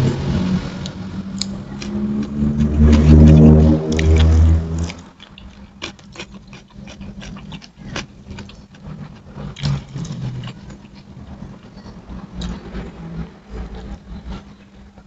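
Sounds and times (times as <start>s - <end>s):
faint low hum: 0.0s - 15.0s
person chewing with wet mouth clicks: 0.8s - 11.1s.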